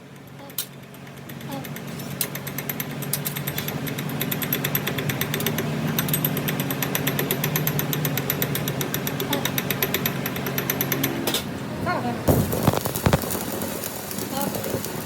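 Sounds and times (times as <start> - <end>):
fast mechanical ticking: 0.0 - 11.4, 12.3 - 15.0
machine humming: 3.9 - 15.0.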